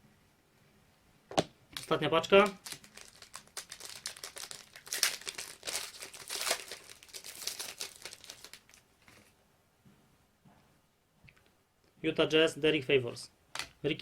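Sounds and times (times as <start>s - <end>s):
wrapper crinkling and tearing: 1.8s - 8.8s.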